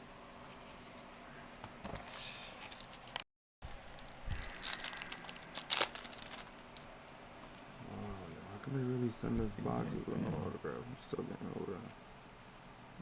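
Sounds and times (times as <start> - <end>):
card pack wrappers crinkling and tearing: 2.6 - 6.9.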